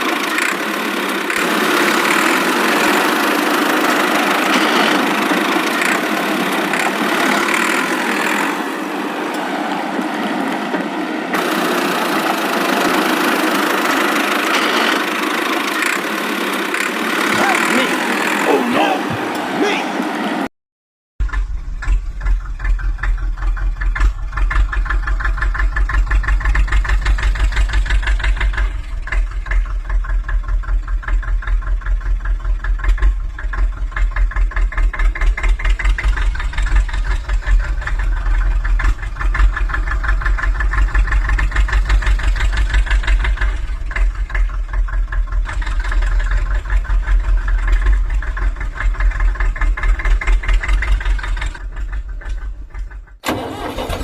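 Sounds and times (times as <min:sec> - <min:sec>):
engine idling with low rumble: 0:11.4 - 0:19.8, 0:21.2 - 0:54.0.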